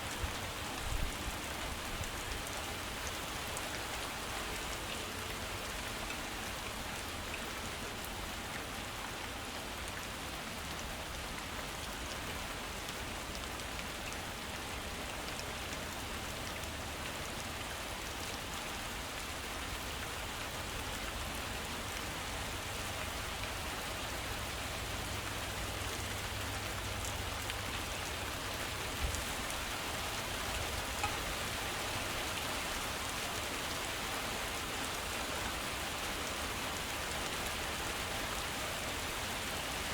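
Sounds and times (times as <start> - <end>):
heavy rain falling: 8.7 - 39.9.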